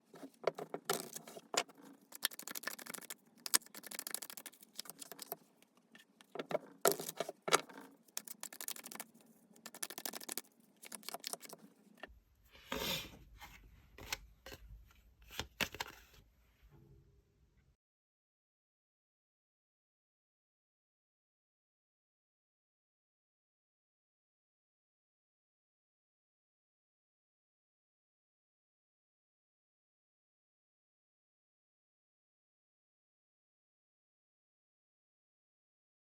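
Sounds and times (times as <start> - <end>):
cards shuffling: 0.2 - 5.4, 6.1 - 11.6.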